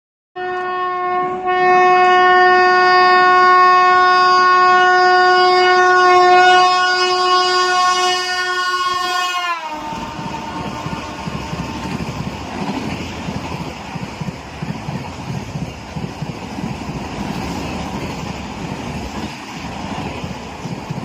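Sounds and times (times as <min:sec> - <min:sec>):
locomotive horn blast: 0:00.4 - 0:12.0
train approaching at speed: 0:04.6 - 0:21.0.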